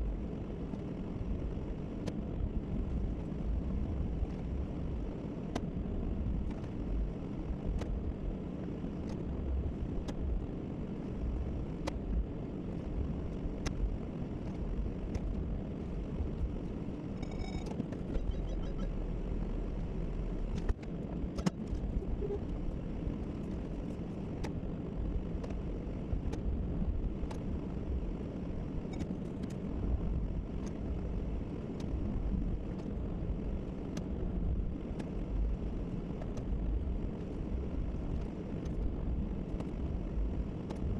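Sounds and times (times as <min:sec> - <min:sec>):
truck engine and road rumble: 0:00.0 - 0:40.9
brief electronic chime: 0:17.2 - 0:18.9.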